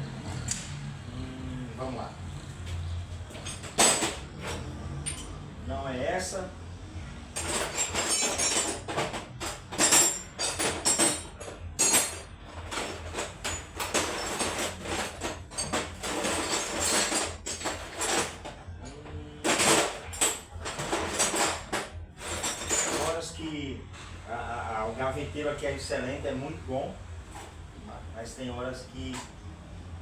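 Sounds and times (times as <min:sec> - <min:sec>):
metal hand tools clattering: 0:03.3 - 0:05.4, 0:07.4 - 0:23.3.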